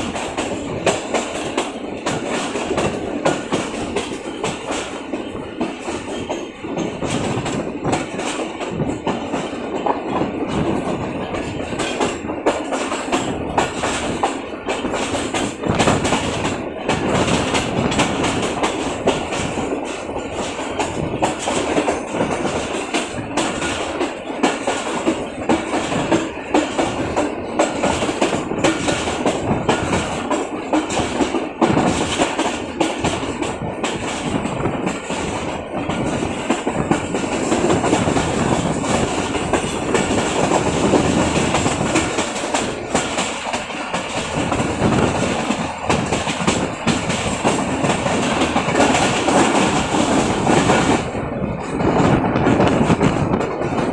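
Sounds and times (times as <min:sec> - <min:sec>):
train wheels rumbling on track: 0:00.0 - 0:53.9
wheels clacking over rail joints: 0:00.0 - 0:53.9.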